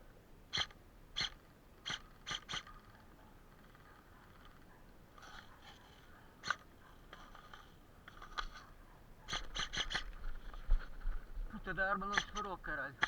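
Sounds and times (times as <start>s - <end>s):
airsoft gunshots: 9.3s - 10.0s, 12.0s - 12.6s.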